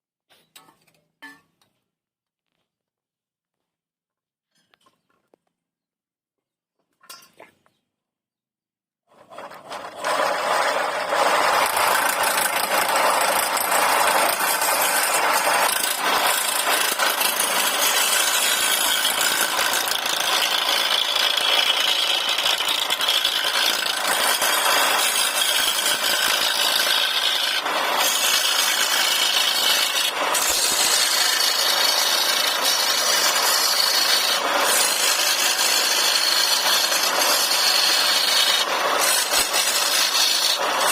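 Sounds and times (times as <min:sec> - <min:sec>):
power tool cutting wood: 0:09.1 - 0:40.9.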